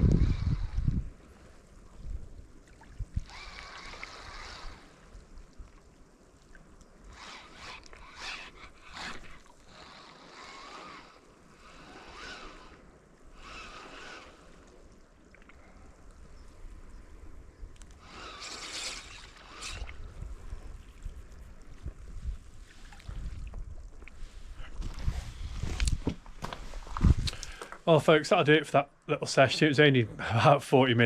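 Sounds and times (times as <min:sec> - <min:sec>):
wind rumble on microphone: 0:00.0 - 0:03.4, 0:19.6 - 0:27.5
water lapping against rocks: 0:01.3 - 0:16.9.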